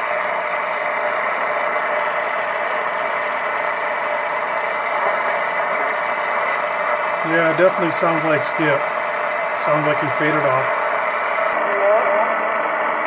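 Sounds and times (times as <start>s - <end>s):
radio static hiss: 0.4s - 13.0s.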